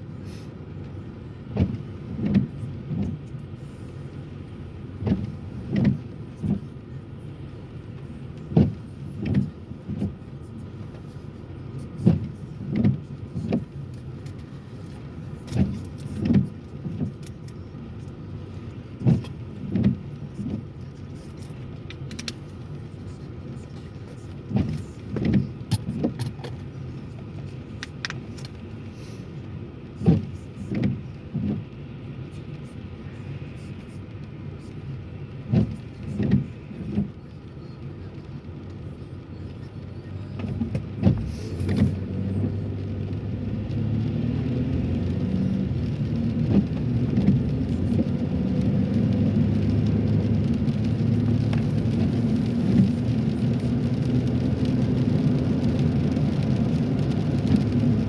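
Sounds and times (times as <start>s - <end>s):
engine and tyre rumble: 0.0s - 58.0s.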